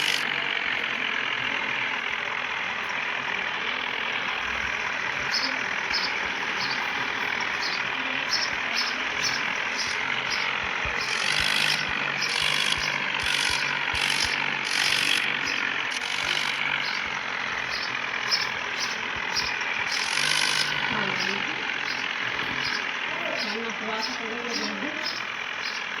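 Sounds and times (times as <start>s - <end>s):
mechanical rattle: 0.0s - 0.8s, 3.8s - 23.1s
irregular ticking: 0.0s - 26.0s
tractor engines running: 0.0s - 26.0s.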